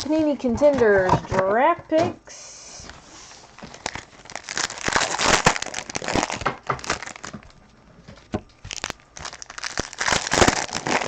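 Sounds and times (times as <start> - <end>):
plastic wrapping crinkling and tearing: 3.3 - 11.0.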